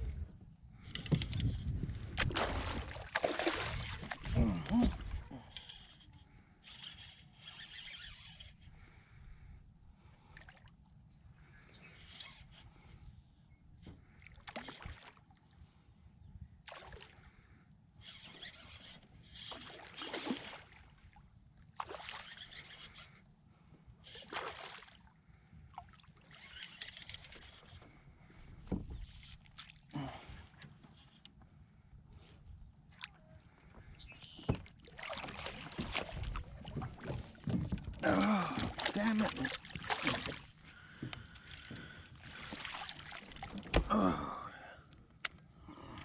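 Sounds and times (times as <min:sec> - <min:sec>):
paddle splashing through water: 0:02.1 - 0:04.4, 0:19.5 - 0:20.8, 0:34.2 - 0:43.9.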